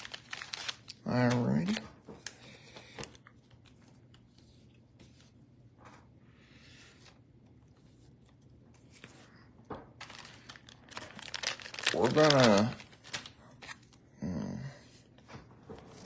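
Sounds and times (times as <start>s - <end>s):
pack wrapper rustle: 0.0s - 2.4s, 10.0s - 14.0s.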